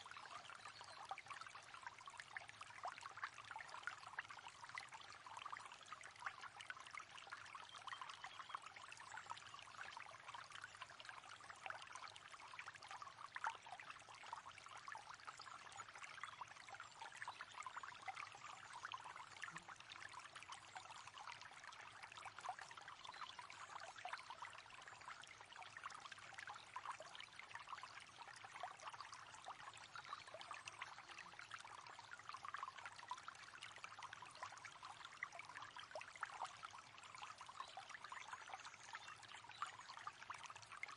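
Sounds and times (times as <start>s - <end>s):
babble of flowing water: 0.0s - 40.9s.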